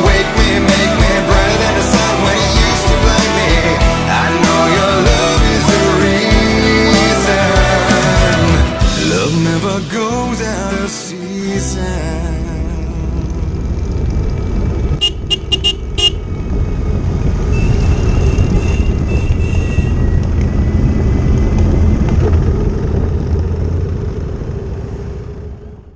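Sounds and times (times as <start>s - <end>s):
motorcycle engine running: 0.0s - 9.8s, 12.2s - 25.9s
horn beeps: 15.0s - 16.3s, 17.5s - 20.2s.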